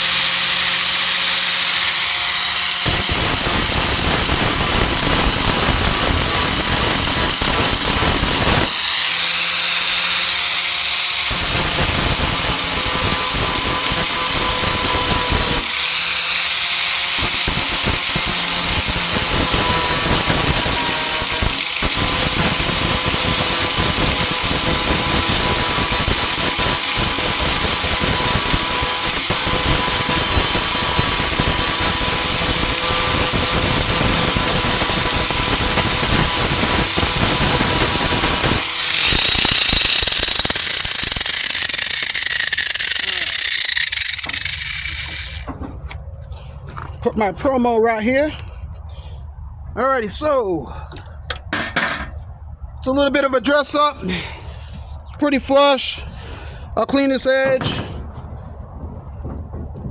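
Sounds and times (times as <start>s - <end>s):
grinder motor whine: 0.0s - 45.5s
angle grinder grinding steel: 0.0s - 45.9s.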